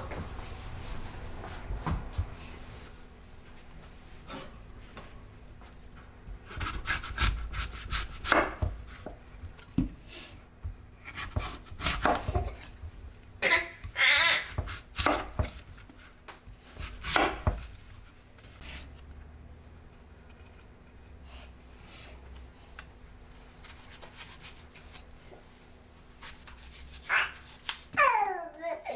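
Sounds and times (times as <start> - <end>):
utensils knocking and scraping food: 6.3 - 10.0, 10.6 - 13.0, 13.8 - 19.0.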